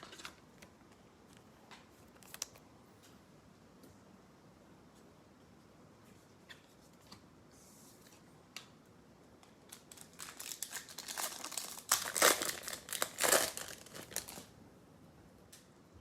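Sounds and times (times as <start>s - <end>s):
card pack wrapper crinkling: 9.7s - 14.5s.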